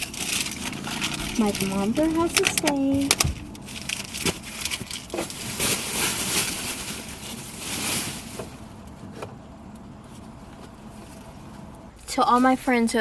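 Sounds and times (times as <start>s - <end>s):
trash rustling into bag: 0.0s - 8.7s.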